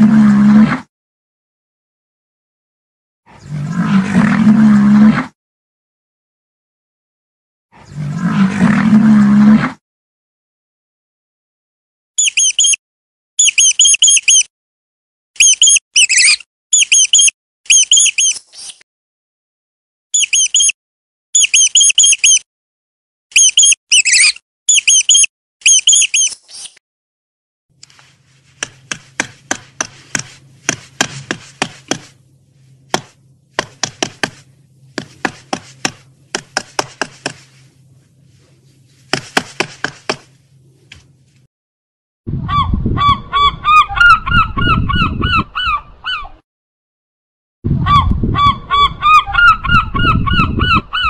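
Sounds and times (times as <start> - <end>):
mouse squeaks: 12.2 - 12.8, 13.4 - 14.5, 15.4 - 18.8, 20.2 - 20.8, 21.4 - 22.4, 23.3 - 26.8
low rumble of wind or surf: 42.3 - 46.0
gulls calling: 47.9 - 51.0.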